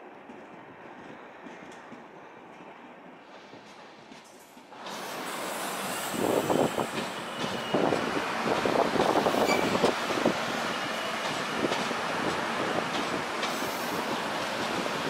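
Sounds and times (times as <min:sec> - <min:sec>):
train wheels clattering: 0:06.1 - 0:15.0.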